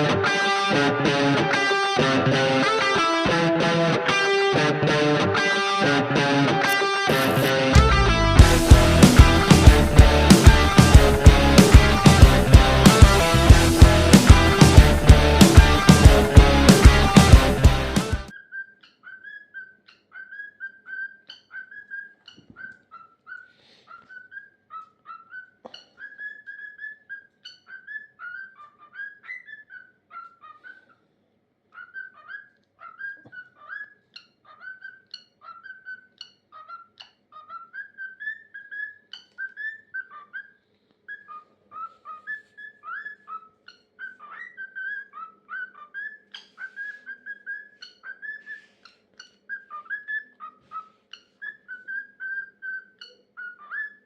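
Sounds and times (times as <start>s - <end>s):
cockatiel whistling song: 18.3s - 30.9s, 31.8s - 54.0s.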